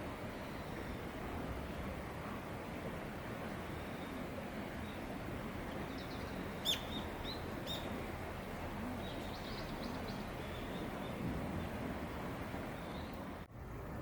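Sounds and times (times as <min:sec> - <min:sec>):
outdoor background noise: 0:00.0 - 0:14.0
small bird chirping: 0:05.8 - 0:08.0, 0:09.0 - 0:11.2.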